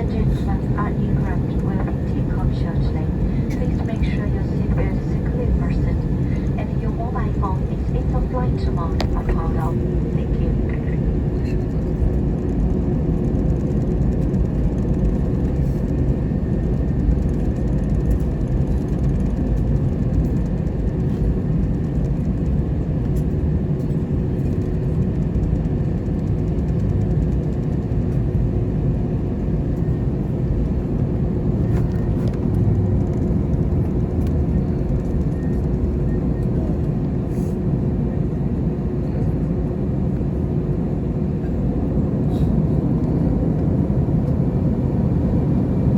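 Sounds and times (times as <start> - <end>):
faint constant hum: 0.0 - 11.6
airplane cabin low rumble: 0.0 - 45.9.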